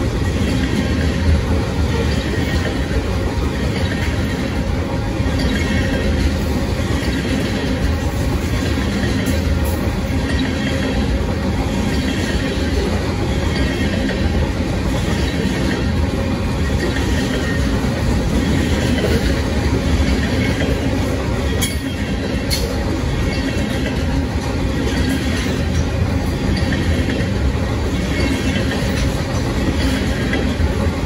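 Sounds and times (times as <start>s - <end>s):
freight train rolling past: 0.0s - 31.0s.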